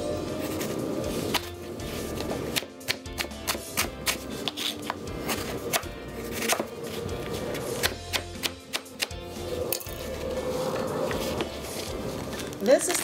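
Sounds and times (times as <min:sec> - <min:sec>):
background music: 0:00.0 - 0:13.0
knife chopping on plastic board: 0:02.5 - 0:06.8, 0:07.5 - 0:09.2.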